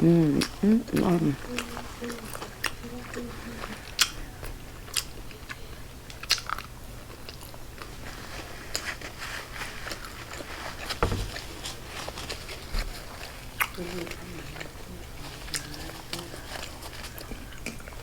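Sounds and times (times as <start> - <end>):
biting and chewing food: 0.0 - 18.0
loud thump: 11.0 - 11.4.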